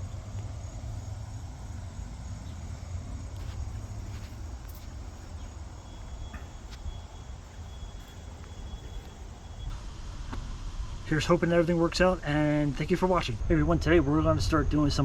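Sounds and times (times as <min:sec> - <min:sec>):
thin high tone: 0:00.0 - 0:09.7.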